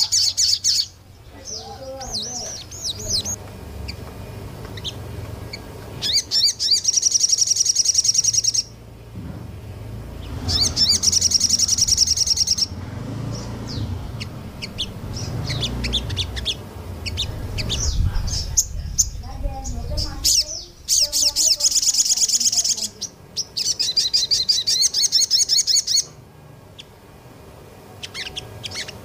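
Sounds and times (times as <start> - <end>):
songbird chirping and whistling: 0.0 - 8.8, 10.2 - 26.2, 28.0 - 29.0
fast bird trills: 4.8 - 8.8, 10.2 - 26.1, 28.0 - 29.0.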